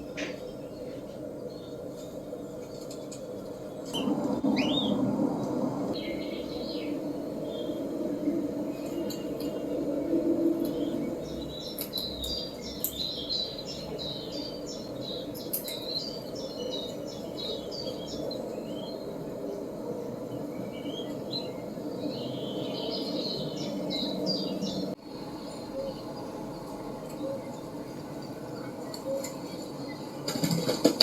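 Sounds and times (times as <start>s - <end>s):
steady low rumble: 3.5s - 15.3s.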